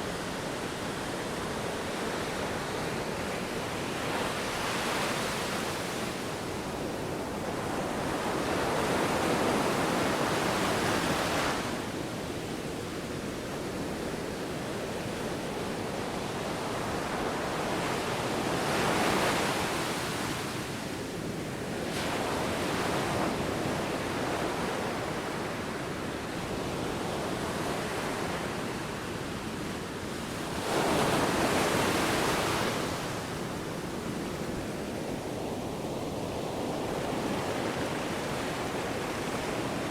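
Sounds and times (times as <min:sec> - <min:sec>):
wind: 0:00.0 - 0:39.9.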